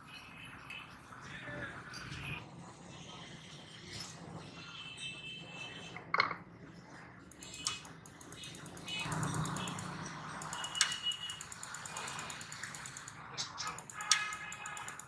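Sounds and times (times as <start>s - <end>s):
metallic clicks and knocks: 7.3s - 15.0s
rapid fine ticking: 7.3s - 15.0s.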